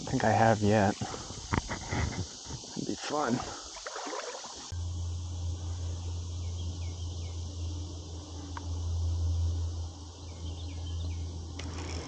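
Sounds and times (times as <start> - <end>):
fishing reel humming: 7.3 - 12.0.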